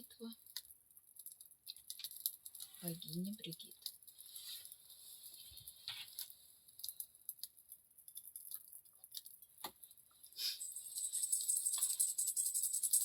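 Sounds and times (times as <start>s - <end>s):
light clicks and taps: 0.3s - 4.8s, 5.5s - 10.3s.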